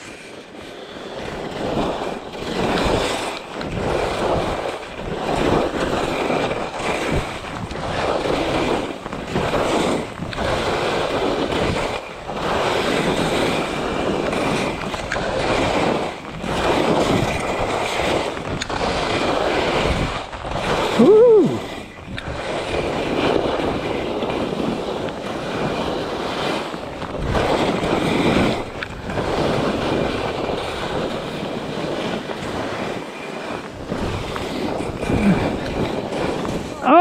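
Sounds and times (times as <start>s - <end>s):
skis scraping swoosh on snow: 0.0s - 37.0s
wind on microphone: 0.0s - 37.0s.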